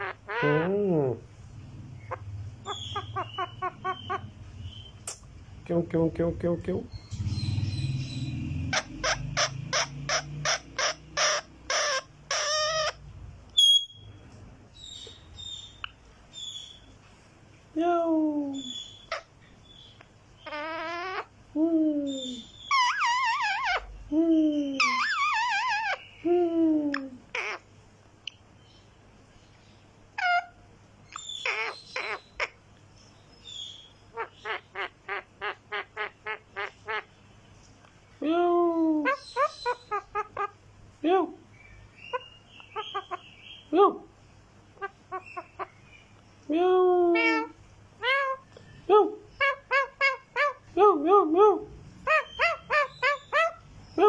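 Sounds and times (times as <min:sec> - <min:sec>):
parrot squawking: 0:00.0 - 0:00.9, 0:01.6 - 0:05.0, 0:06.9 - 0:14.1, 0:18.6 - 0:19.4, 0:20.4 - 0:21.4, 0:22.1 - 0:24.0, 0:24.7 - 0:26.2, 0:26.9 - 0:27.7, 0:30.2 - 0:30.6, 0:31.2 - 0:32.6, 0:33.5 - 0:37.2, 0:39.0 - 0:40.6, 0:42.0 - 0:43.7, 0:44.8 - 0:45.9, 0:47.1 - 0:48.6, 0:49.2 - 0:50.7, 0:52.0 - 0:53.8
high chirp: 0:01.9 - 0:05.3, 0:13.6 - 0:14.2.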